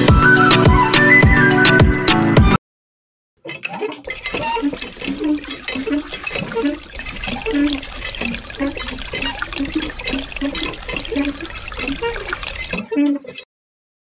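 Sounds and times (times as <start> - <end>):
water splashing into metal bucket: 4.0 - 12.8.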